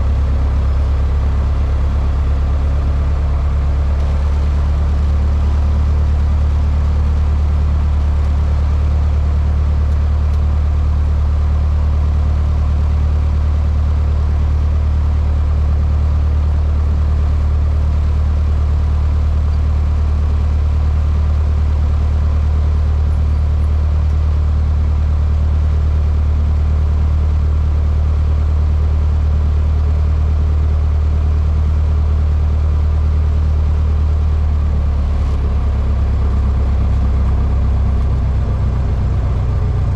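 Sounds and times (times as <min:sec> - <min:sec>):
airplane engine drone: 0:34.4 - 0:39.9.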